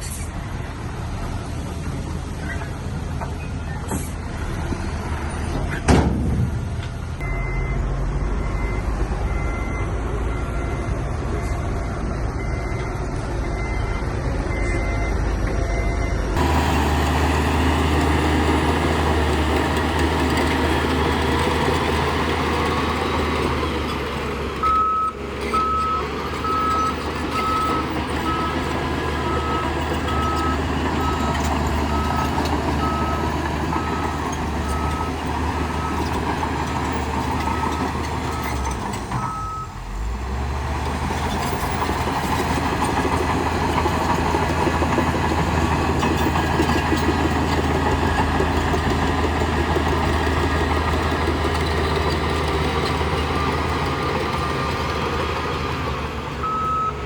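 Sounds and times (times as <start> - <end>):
heavy machinery diesel engines: 0.0 - 57.0
sharp bang: 5.9 - 6.8
reversing alarm beeping: 7.2 - 16.4, 24.6 - 36.1, 39.2 - 39.8, 56.4 - 57.0.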